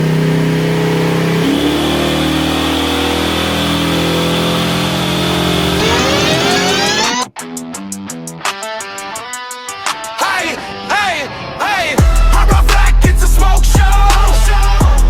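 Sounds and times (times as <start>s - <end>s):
engine running and revving: 0.0s - 7.3s.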